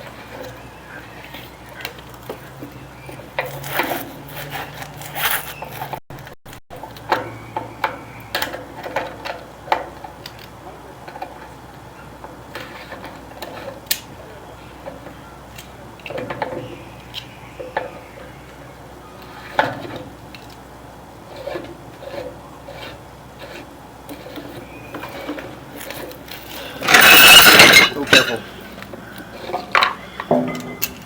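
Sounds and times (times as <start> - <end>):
light knocks clicks and scrapes: 0.0 - 11.6, 12.2 - 18.0, 19.2 - 20.6, 21.3 - 31.0.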